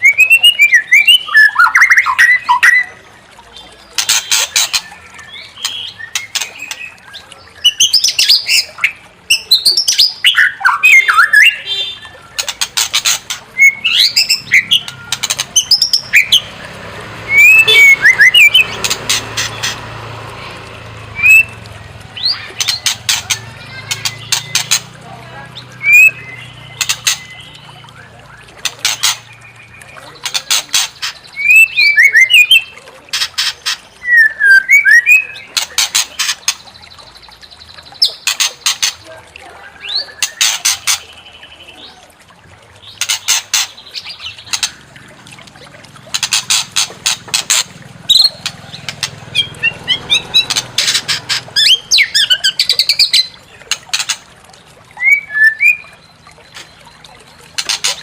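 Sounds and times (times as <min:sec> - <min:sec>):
sliding whistled bird phrases: 0:00.0 - 0:03.0, 0:13.6 - 0:16.5, 0:17.3 - 0:18.7, 0:21.2 - 0:21.6, 0:25.6 - 0:30.4, 0:31.0 - 0:32.8, 0:34.0 - 0:35.5, 0:55.0 - 0:56.0
harsh rattling bird notes: 0:00.2 - 0:39.0, 0:42.8 - 0:54.3, 0:55.0 - 0:58.0.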